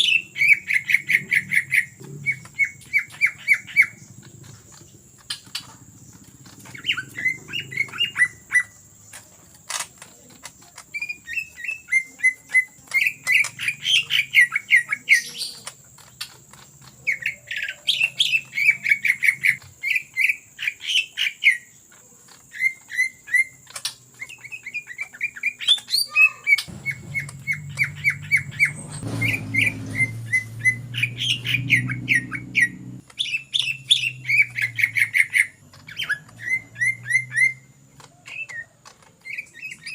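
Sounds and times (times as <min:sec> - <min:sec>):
bird chattering song: 0:00.0 - 0:39.9
low hum: 0:26.7 - 0:33.0.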